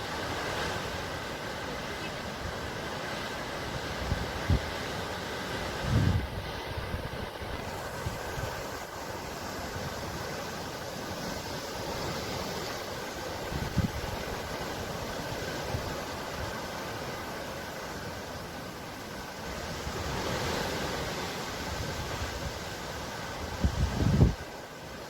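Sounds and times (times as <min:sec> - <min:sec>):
sea surf washing: 0:00.0 - 0:25.0
wind buffeting microphone: 0:05.6 - 0:09.0, 0:13.4 - 0:16.1, 0:21.6 - 0:24.5.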